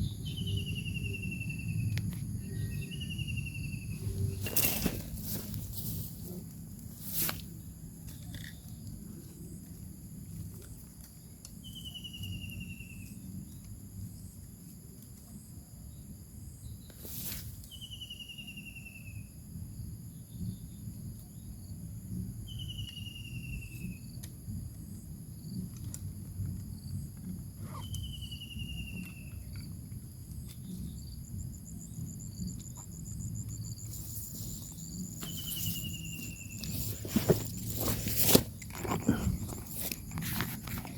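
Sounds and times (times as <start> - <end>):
high insect drone: 0.0 - 40.9
sharp knocks and rustles: 4.1 - 8.6, 33.9 - 40.9.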